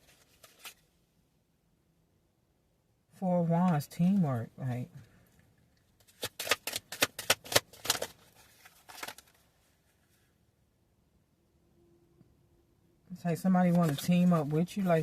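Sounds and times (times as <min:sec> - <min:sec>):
cards being shuffled: 0:00.0 - 0:00.8, 0:06.0 - 0:09.4, 0:13.7 - 0:15.0.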